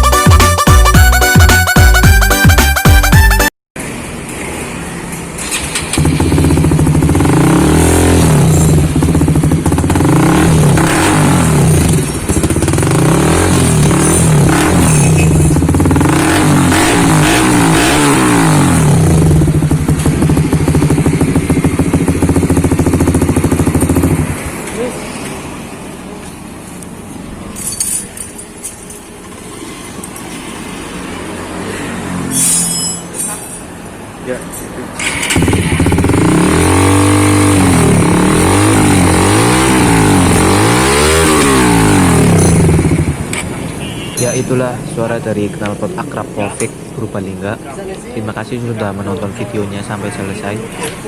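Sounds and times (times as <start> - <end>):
motorcycle engine revving: 5.4 - 24.9, 35.0 - 43.7
motorcycle engine idling: 6.0 - 7.8, 8.5 - 10.2, 19.0 - 24.4.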